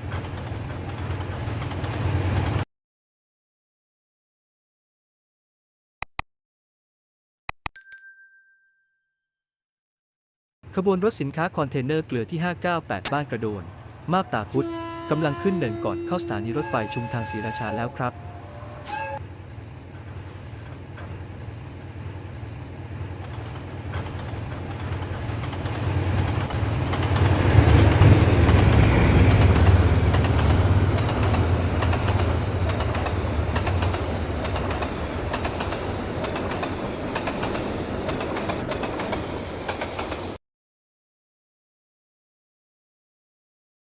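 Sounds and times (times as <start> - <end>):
train wheels clattering on rails: 0.0 - 2.6, 19.8 - 40.4
diesel locomotive engine drone: 12.4 - 40.3.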